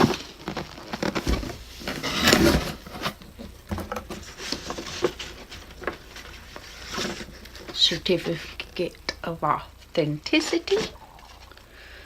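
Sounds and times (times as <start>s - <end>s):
cardboard box rustling and scraping: 0.0s - 7.7s.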